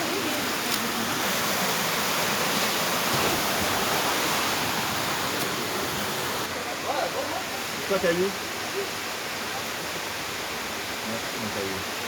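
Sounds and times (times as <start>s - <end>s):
water rushing down waterfall: 0.0s - 12.0s.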